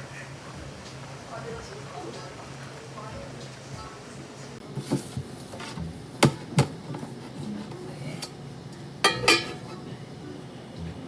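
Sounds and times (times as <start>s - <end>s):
kitchenware clinking: 4.7s - 10.1s
kitchenware knocking: 9.0s - 9.8s.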